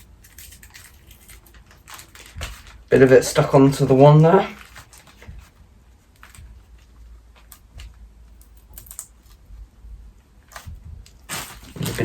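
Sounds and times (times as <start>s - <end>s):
fingers picking at tape: 7.3s - 9.5s.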